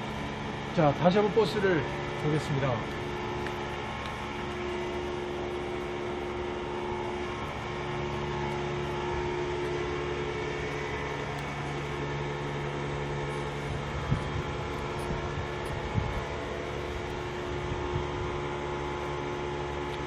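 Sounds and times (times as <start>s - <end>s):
mechanical hum with tones: 0.0s - 20.0s.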